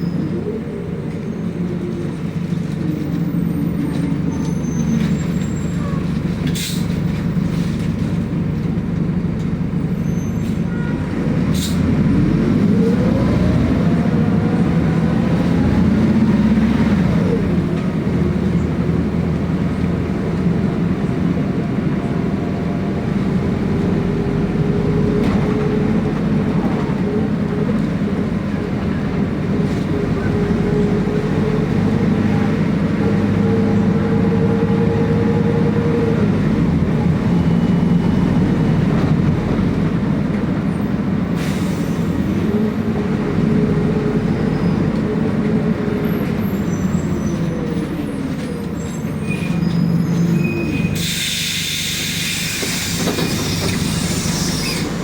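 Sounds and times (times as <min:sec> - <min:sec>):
bus engine drone and whine: 0:00.0 - 0:55.0
brief air hiss: 0:50.9 - 0:55.0.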